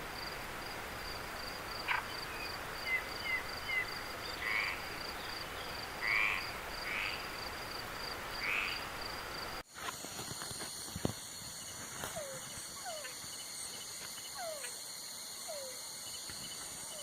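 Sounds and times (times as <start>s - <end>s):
frogs and insects night chorus: 0.1s - 17.0s
frog croaking: 1.8s - 2.3s, 2.9s - 5.0s, 6.0s - 7.4s, 8.4s - 9.0s.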